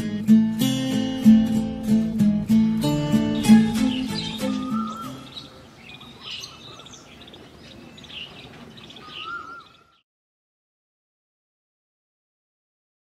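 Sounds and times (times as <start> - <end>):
faint outdoor ambience: 0.0 - 10.0
birds chirping and calling: 0.9 - 10.0
whistled note: 3.2 - 5.5.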